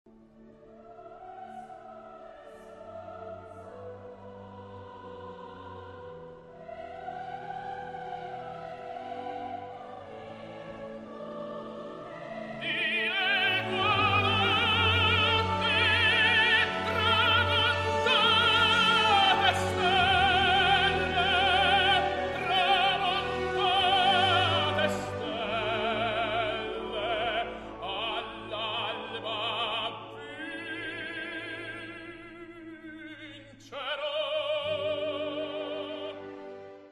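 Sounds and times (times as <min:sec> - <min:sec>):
operatic singing with vibrato: 0:00.4 - 0:36.8.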